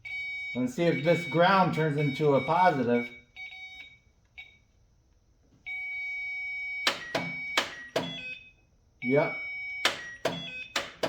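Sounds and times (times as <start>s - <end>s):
electronic beeping: 0.8s - 4.6s.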